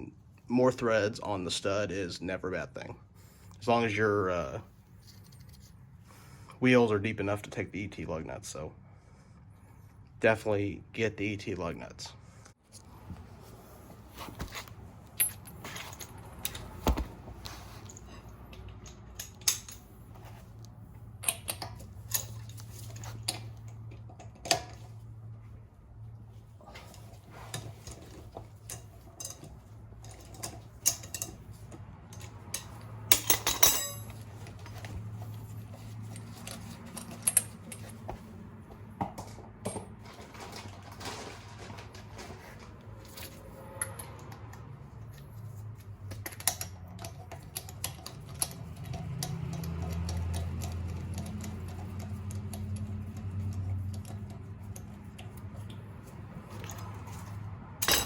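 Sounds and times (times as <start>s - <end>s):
metal lug nuts clinking: 14.4s - 25.0s, 26.7s - 38.2s, 43.0s - 58.0s.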